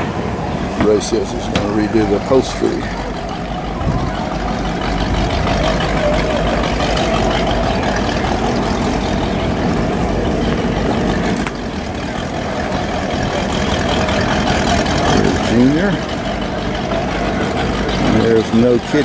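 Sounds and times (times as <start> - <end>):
engine rumbling: 0.0 - 19.0.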